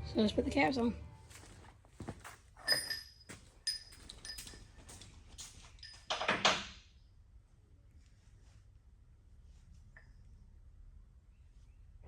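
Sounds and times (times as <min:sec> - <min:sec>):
metal clinks: 0:02.6 - 0:05.1.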